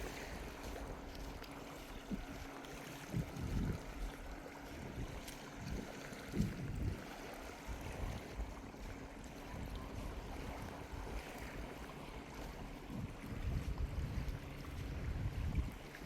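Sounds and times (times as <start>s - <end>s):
sea waves washing on shore: 0.0s - 16.0s
wind gusting on microphone: 3.1s - 3.9s, 12.8s - 15.9s.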